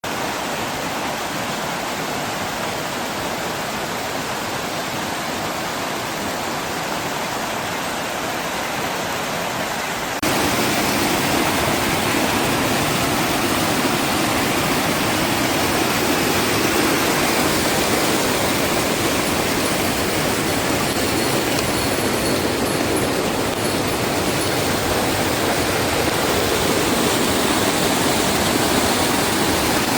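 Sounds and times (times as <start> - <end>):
heavy rain pouring: 9.6 - 29.9.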